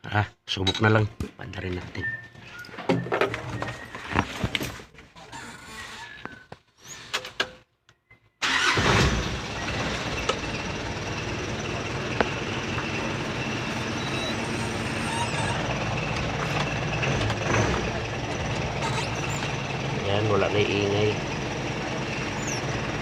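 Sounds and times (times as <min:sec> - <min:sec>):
diesel engine starting and idling: 0:08.4 - 0:23.0.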